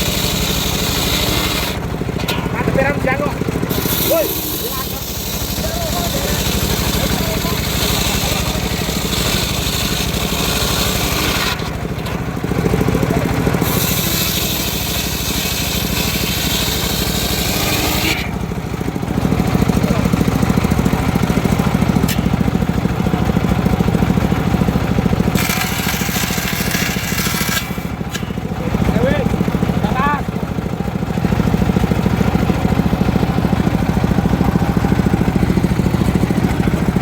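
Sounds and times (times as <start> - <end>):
saw blade cutting wood: 0.0 - 12.2, 12.8 - 18.8, 19.4 - 22.6, 24.6 - 29.2
engine drone: 0.0 - 37.0.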